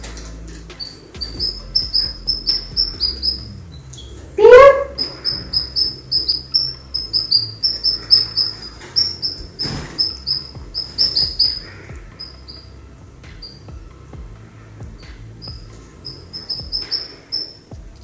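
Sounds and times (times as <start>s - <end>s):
pet bird chirping: 0.7s - 12.7s, 15.4s - 17.7s.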